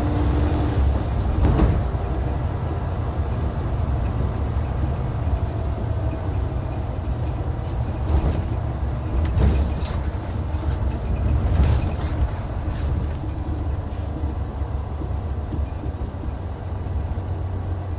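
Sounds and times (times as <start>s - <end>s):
coach diesel engine drone: 0.0s - 17.9s
road rumble: 0.0s - 17.9s.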